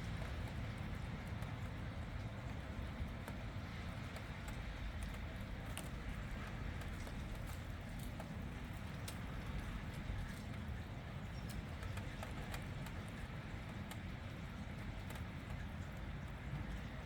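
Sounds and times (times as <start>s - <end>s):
light irregular taps: 2.5s - 10.6s.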